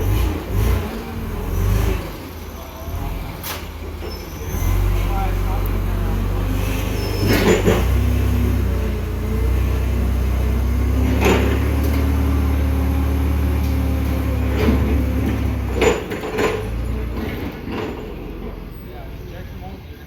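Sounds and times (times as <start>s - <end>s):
knocks and clunks: 7.2s - 8.3s, 10.9s - 12.5s, 13.4s - 18.7s.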